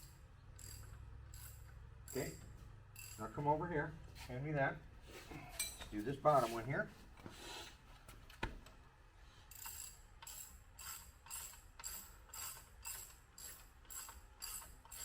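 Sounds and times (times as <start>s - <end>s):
ratchet wrench clicking: 0.0s - 2.4s, 3.0s - 3.2s, 9.5s - 15.0s.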